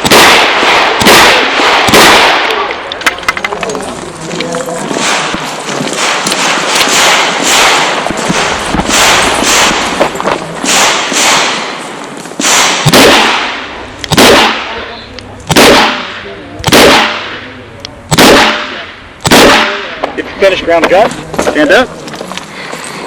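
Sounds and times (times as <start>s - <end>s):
handgun shots: 0.0s - 2.7s, 6.0s - 10.0s, 10.6s - 11.8s, 12.4s - 14.8s, 15.5s - 17.4s, 18.1s - 20.0s.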